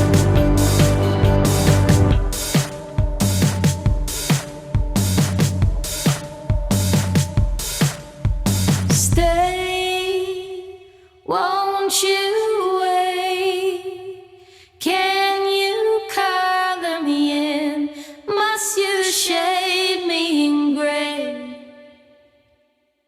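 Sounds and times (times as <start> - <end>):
woman singing: 9.0 - 22.3.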